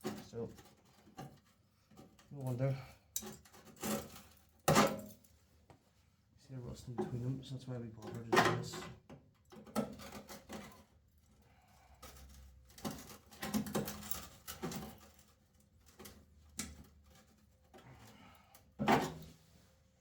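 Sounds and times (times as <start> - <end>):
objects knocking and clattering: 3.2 - 5.2, 12.0 - 15.3, 18.8 - 19.3.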